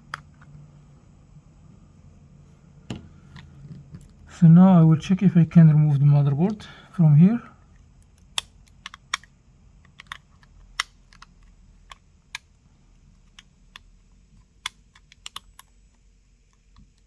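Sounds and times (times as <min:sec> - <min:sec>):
small tools clicking on phone frame: 0:08.0 - 0:12.5, 0:13.2 - 0:17.0.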